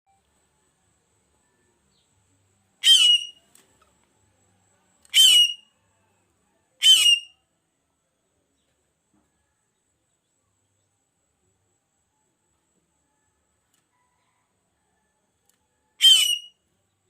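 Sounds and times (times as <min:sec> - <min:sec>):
harsh bird calls: 0:02.8 - 0:03.4, 0:05.1 - 0:05.6, 0:06.8 - 0:07.3, 0:16.0 - 0:16.5.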